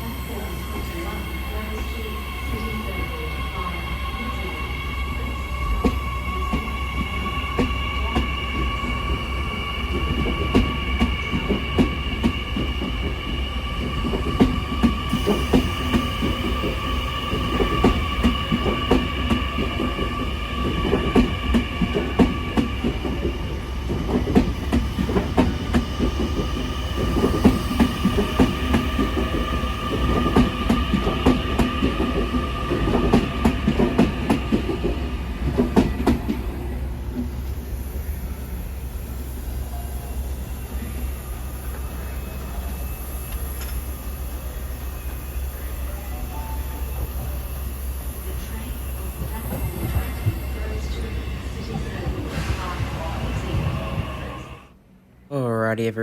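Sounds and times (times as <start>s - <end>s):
train wheels clattering: 5.7s - 36.5s, 48.3s - 54.6s.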